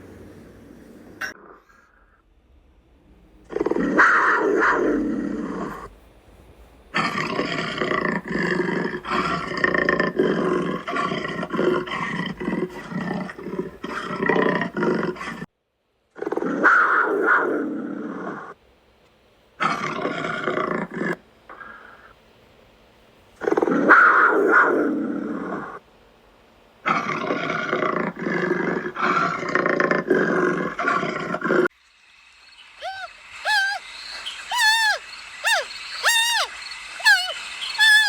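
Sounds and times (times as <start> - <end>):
animal roaring and growling: 3.5 - 5.9, 7.0 - 15.5, 16.2 - 18.6, 19.6 - 21.8, 23.4 - 25.8, 26.9 - 31.7.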